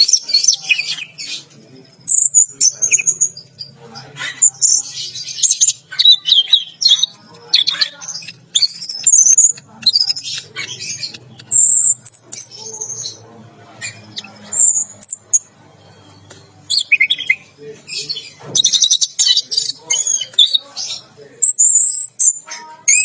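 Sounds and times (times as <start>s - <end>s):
thrush singing whistles and chirps: 4.8s - 13.2s, 18.1s - 20.6s.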